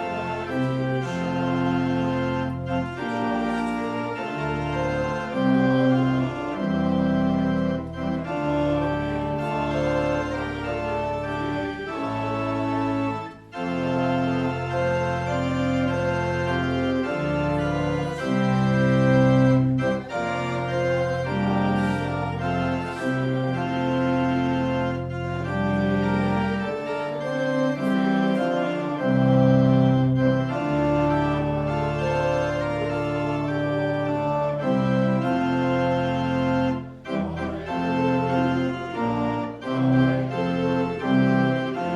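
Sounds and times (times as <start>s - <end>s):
organ playing held chords: 0.0s - 41.9s.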